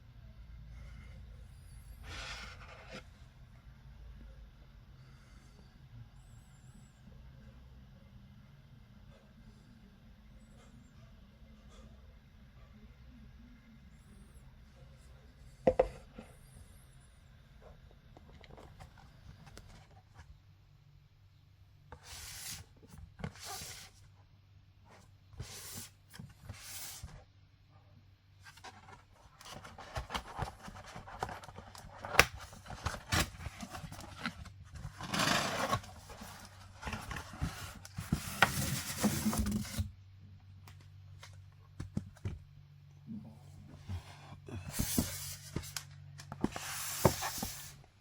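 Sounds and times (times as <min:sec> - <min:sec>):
packaging rubbing and scraping: 0:28.8 - 0:39.8.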